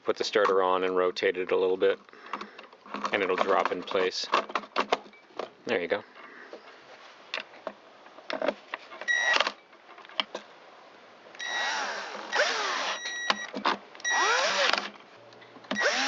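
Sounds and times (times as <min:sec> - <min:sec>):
clicks and knocks of handling tools: 0:01.5 - 0:05.6, 0:07.3 - 0:10.5
cordless screwdriver running: 0:11.4 - 0:13.1, 0:14.1 - 0:14.9, 0:15.8 - 0:16.0.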